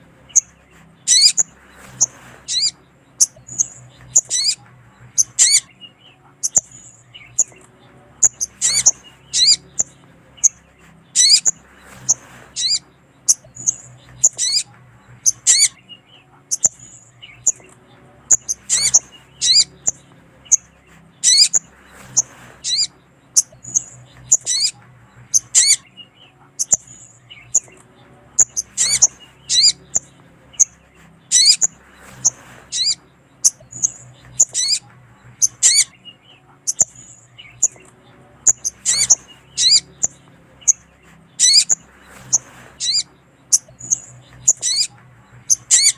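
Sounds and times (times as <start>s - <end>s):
bird calling with high chirps: 0.0s - 45.9s.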